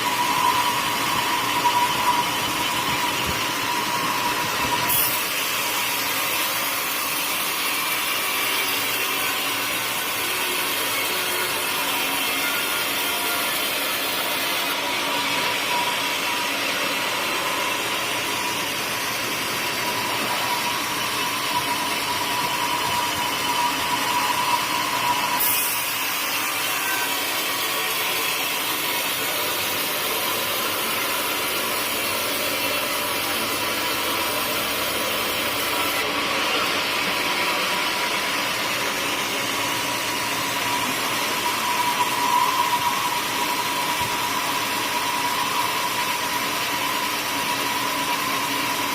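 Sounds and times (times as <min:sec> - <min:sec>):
sawmill saw cutting log: 0:00.0 - 0:48.9.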